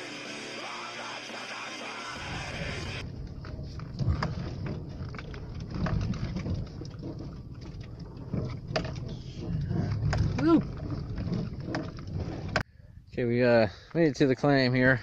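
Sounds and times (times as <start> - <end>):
knocks and rattles: 3.0 - 12.6
vehicle rumbling on dirt track: 3.0 - 12.6.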